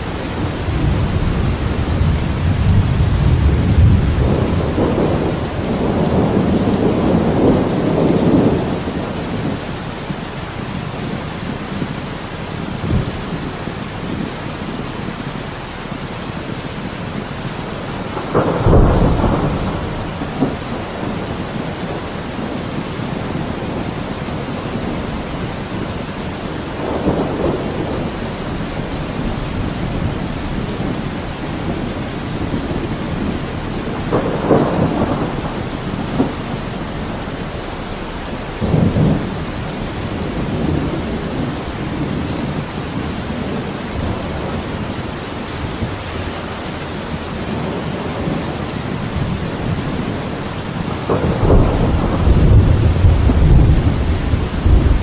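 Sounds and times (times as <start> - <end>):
steady rain: 0.0 - 55.0
thunder rumbling: 0.0 - 55.0
sharp thunder clap: 0.5 - 9.6, 18.1 - 22.0, 26.7 - 42.5, 50.8 - 55.0.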